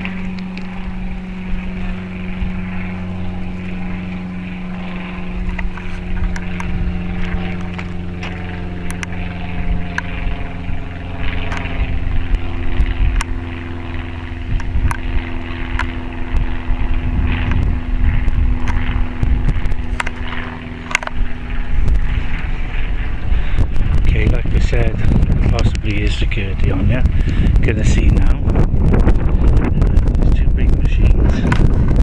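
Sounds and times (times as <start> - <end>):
engine running: 0.0 - 32.0
sharp clicks and knocks: 19.5 - 21.2.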